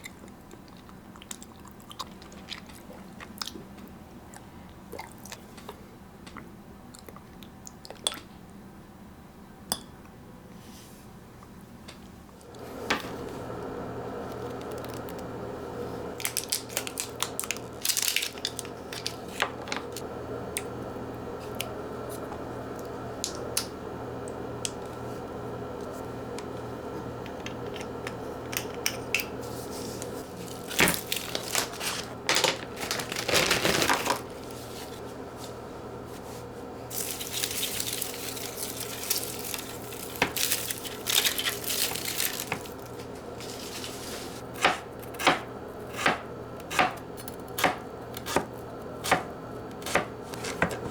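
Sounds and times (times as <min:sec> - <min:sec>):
rustling and rubbing: 0:29.4 - 0:44.4.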